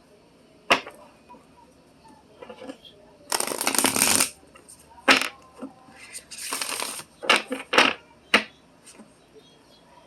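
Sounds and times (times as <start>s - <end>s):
cards tapping on table: 3.3s - 4.3s
cards riffle shuffling: 3.3s - 4.4s, 6.4s - 7.1s.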